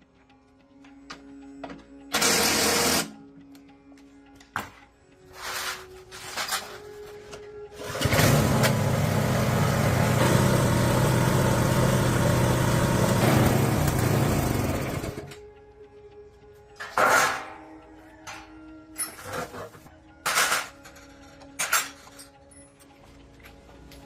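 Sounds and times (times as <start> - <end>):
motor running: 7.8 - 15.4.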